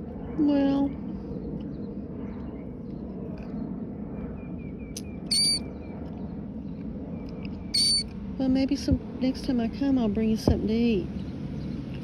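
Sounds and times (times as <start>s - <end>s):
low outdoor background noise: 0.0s - 12.0s
small bird chirping: 5.0s - 5.6s, 7.8s - 8.0s.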